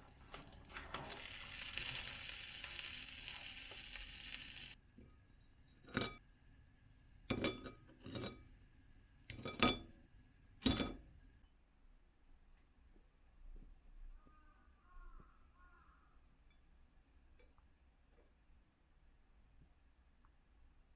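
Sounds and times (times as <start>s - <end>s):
food sizzling in a frying pan: 0.0s - 4.8s
dishes clinking: 5.8s - 6.2s, 7.3s - 8.4s, 9.3s - 10.0s, 10.6s - 11.0s.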